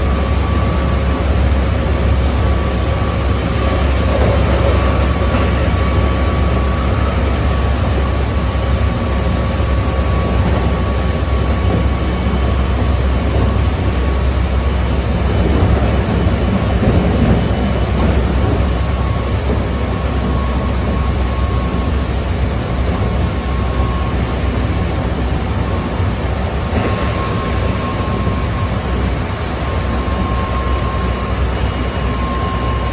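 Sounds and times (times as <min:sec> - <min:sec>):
train wheels rumbling on rail: 0:00.0 - 0:32.9
traction motor whine: 0:02.0 - 0:10.4, 0:23.6 - 0:32.9.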